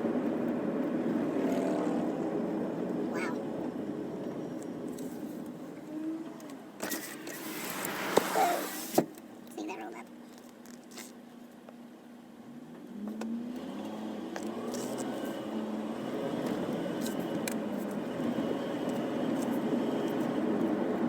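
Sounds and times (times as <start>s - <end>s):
vehicle engine speeding up: 0.0s - 4.1s.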